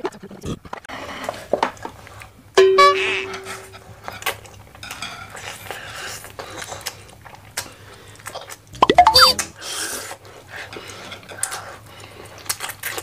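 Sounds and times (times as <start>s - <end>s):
noodles slurped and chewed: 9.7s - 13.0s.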